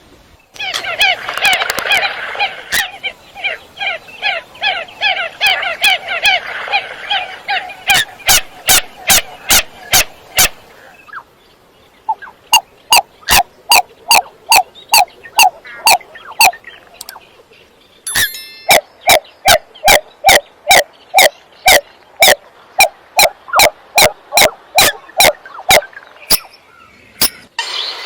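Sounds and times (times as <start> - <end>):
coots calling: 0.5 - 17.5, 18.6 - 28.0.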